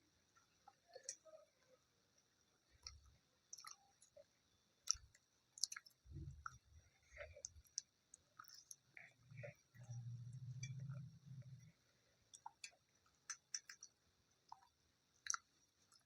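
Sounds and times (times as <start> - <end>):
person chewing: 2.8 - 11.7, 12.3 - 16.0.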